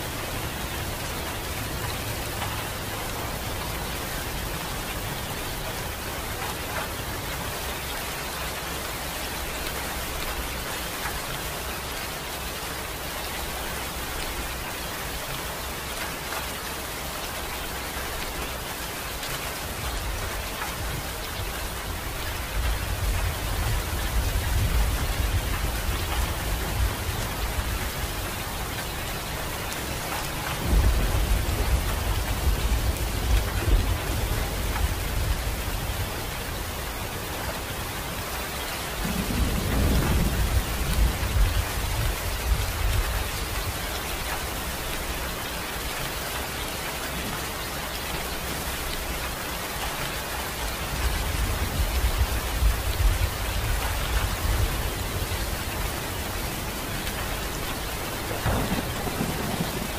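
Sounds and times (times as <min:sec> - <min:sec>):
steady rain: 0:00.0 - 0:59.9
rolling thunder: 0:30.6 - 0:36.1, 0:39.0 - 0:43.2, 0:58.0 - 0:59.9.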